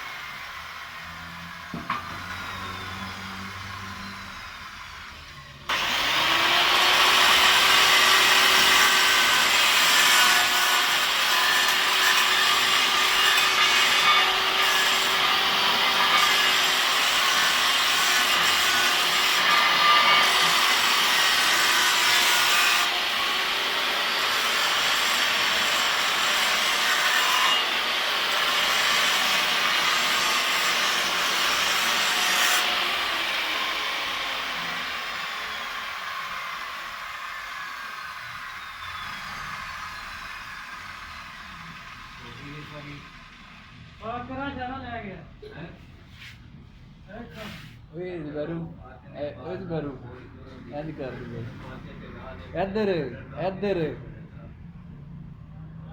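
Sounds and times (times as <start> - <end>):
angle grinder whining and grinding: 0.0 - 44.1.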